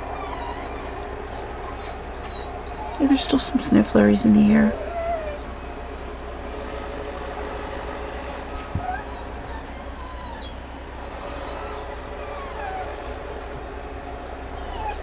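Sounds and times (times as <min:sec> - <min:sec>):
animal whining calls: 0:00.0 - 0:03.6, 0:04.4 - 0:05.6, 0:07.9 - 0:13.6, 0:14.2 - 0:15.0
steady low hum: 0:00.0 - 0:15.0.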